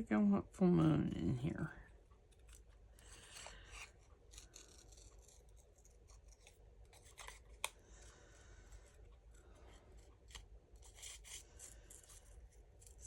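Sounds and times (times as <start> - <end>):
scissors snipping paper: 2.3 - 7.8, 10.0 - 13.0.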